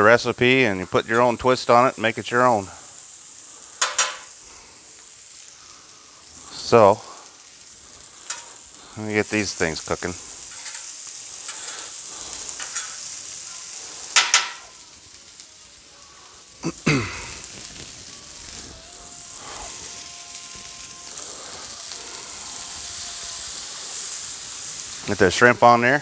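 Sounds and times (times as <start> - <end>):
food sizzling on a griddle: 0.0 - 26.0
spatula clattering on metal: 3.8 - 4.3, 10.5 - 11.9, 12.5 - 13.1, 14.1 - 14.7.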